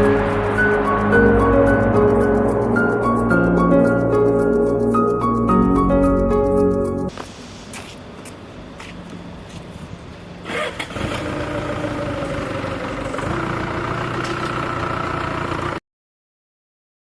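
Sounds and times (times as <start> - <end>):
sawmill engine running: 0.0 - 6.8, 10.7 - 15.8.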